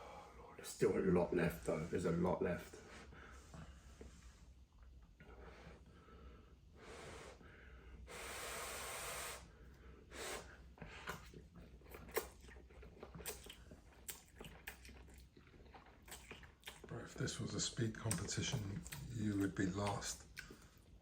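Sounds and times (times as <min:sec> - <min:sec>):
eating clicks and smacks: 0:11.0 - 0:21.0.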